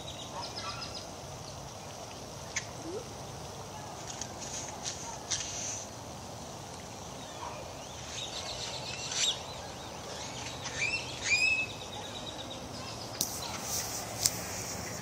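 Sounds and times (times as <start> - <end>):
birds chirping and trilling: 0.0 - 1.6, 7.0 - 13.9
background hiss: 0.0 - 15.0.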